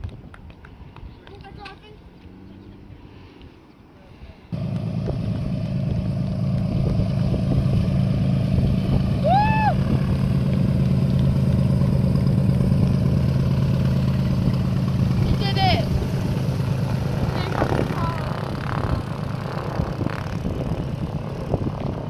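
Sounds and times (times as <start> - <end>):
aircraft piston engine running: 4.5 - 22.0.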